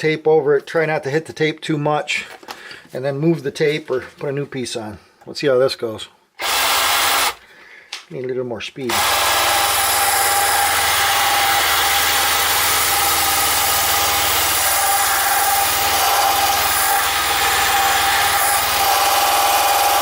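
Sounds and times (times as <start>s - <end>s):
electric drill grinding metal: 6.4s - 7.4s, 8.9s - 20.0s.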